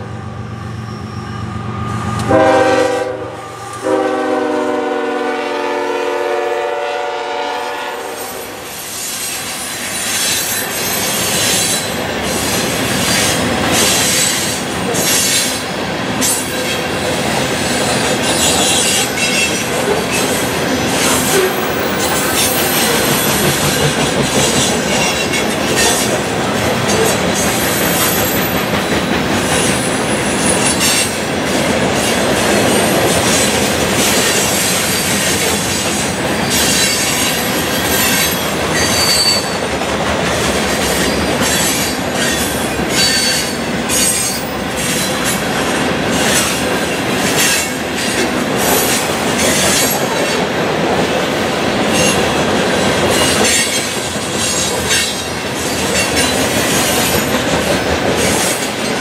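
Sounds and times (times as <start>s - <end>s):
freight train wheels rumbling: 0.0s - 59.0s
high-pitched wheel squeals: 0.4s - 3.8s, 36.4s - 39.6s, 41.0s - 44.6s.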